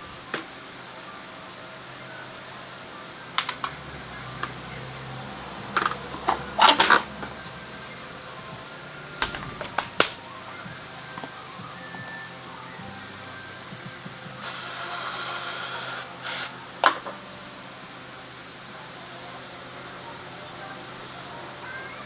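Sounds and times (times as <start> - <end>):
faint steady hum: 0.0 - 22.0
tools and parts clicking: 3.4 - 3.8.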